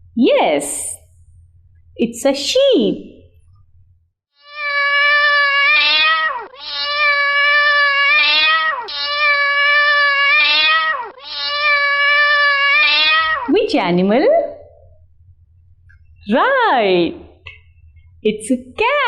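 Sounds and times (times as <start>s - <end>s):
cat meowing: 4.4s - 13.5s.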